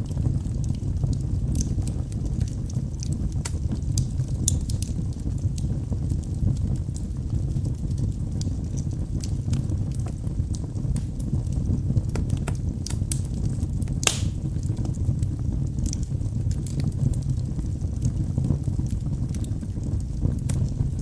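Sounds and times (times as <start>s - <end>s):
burning logs crackling and popping: 0.0s - 21.0s
fire flames rumbling: 0.0s - 21.0s.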